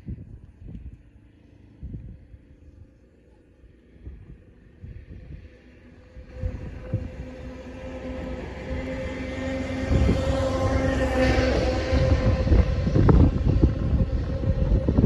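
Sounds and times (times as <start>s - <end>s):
train passing close by: 3.8s - 15.0s.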